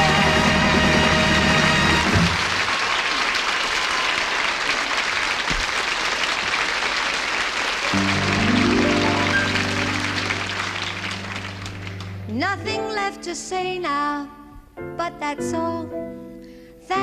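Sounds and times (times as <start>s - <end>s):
studio audience applauding: 0.0s - 12.4s
band playing: 7.9s - 13.0s.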